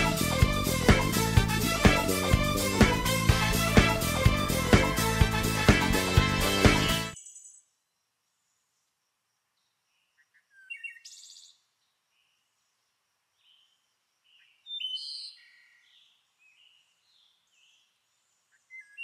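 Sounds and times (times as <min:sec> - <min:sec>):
songbirds singing: 0:07.2 - 0:19.0.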